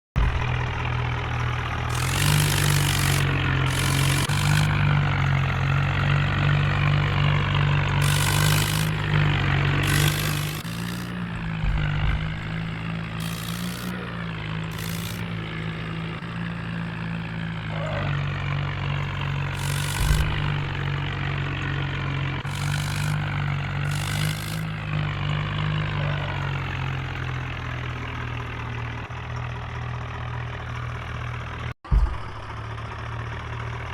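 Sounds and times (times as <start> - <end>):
tractor diesel engine running: 0.2 - 33.9
short bursts of hiss: 1.9 - 4.9, 8.0 - 9.2, 9.8 - 11.4, 13.2 - 14.0, 14.7 - 15.3, 19.6 - 20.8, 22.5 - 24.8.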